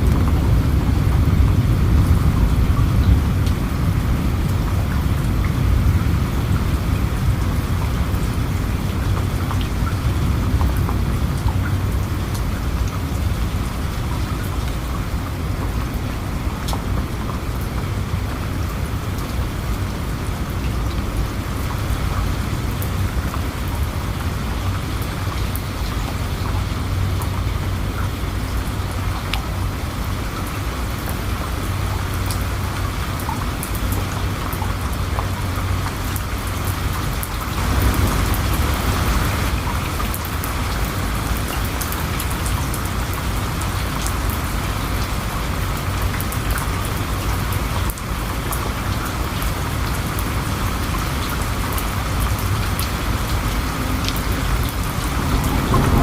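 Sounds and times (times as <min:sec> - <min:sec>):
rain drops ticking: 0:00.0 - 0:56.0
low rumble: 0:53.8 - 0:56.0.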